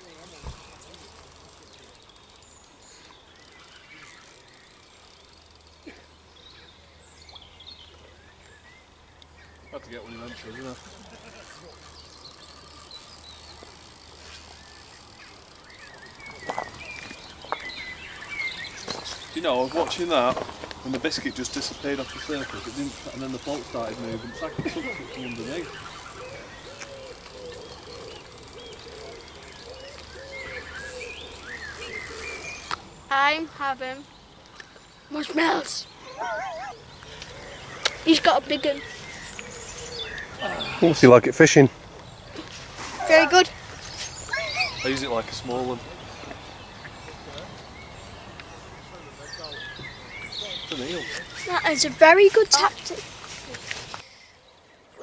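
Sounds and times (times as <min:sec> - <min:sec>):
faint high bird chirps: 0:21.2 - 0:40.9, 0:42.3 - 0:55.0
pigeon cooing: 0:26.1 - 0:31.1, 0:36.0 - 0:37.7, 0:44.3 - 0:45.0.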